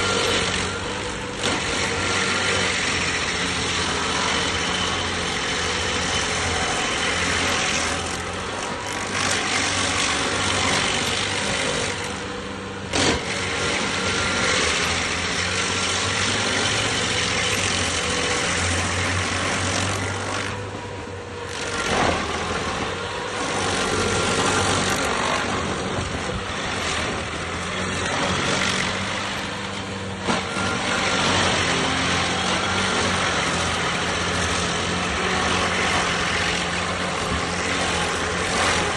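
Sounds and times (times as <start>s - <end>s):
cutter wheel grinding wood: 0.0s - 38.9s
stump grinder engine: 0.0s - 38.9s.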